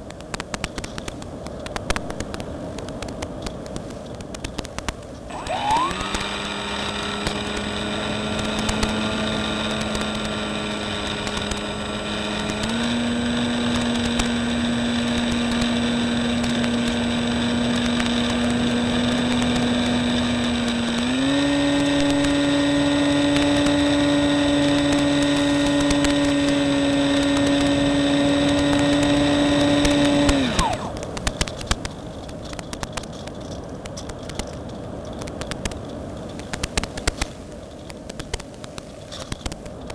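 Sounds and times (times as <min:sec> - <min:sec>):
crackling static: 0:00.0 - 0:39.9
electric motor propeller whine: 0:05.3 - 0:31.8.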